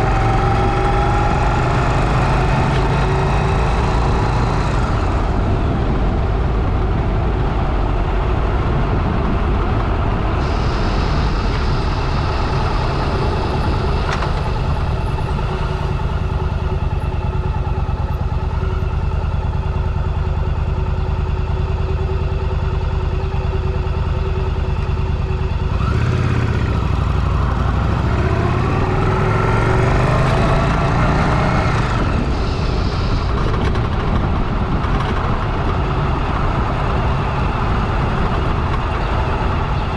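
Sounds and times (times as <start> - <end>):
motorcycle engine revving: 0.0 - 7.4, 24.3 - 39.9.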